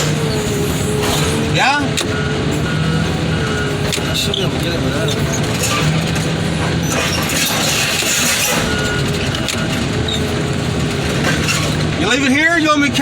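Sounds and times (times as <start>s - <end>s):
heavy equipment engine running: 0.0s - 13.0s
metal scraping and clinking: 4.0s - 12.2s.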